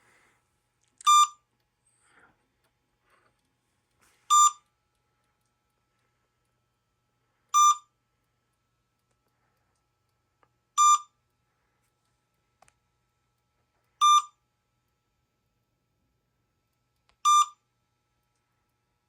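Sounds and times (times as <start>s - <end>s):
short electronic beep: 1.1s - 1.4s, 4.3s - 4.6s, 7.6s - 7.9s, 10.8s - 11.1s.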